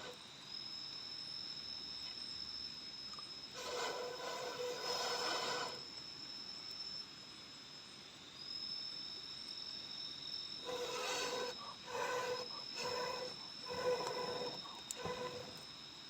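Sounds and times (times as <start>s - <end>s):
insects trilling: 0.0s - 16.0s
hoarse animal call: 10.6s - 15.6s.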